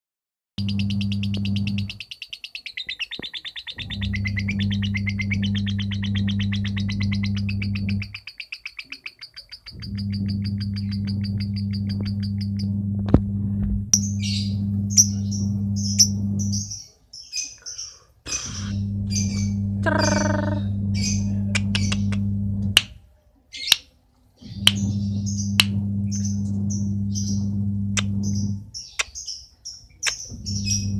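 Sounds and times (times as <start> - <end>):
steady low hum: 0.6 - 2.1, 3.7 - 8.2, 9.4 - 16.8, 18.2 - 23.1, 24.4 - 29.0, 30.2 - 30.9
bird chirping: 0.6 - 12.7, 14.0 - 22.3, 23.5 - 30.9
lovebird chattering trill: 0.6 - 12.7, 14.0 - 22.3
sharp clicks: 21.6 - 22.9.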